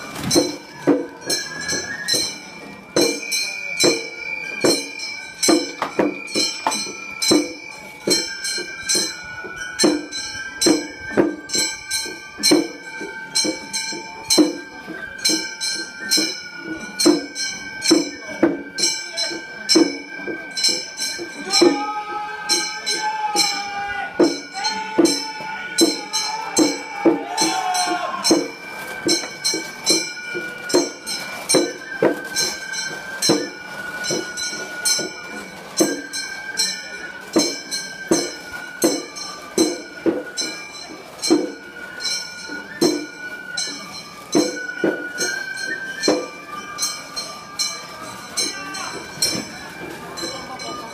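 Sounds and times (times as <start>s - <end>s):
hand gongs clanging: 0.2s - 21.9s
flute long notes: 6.1s - 50.6s
flute holding high notes: 19.9s - 35.4s.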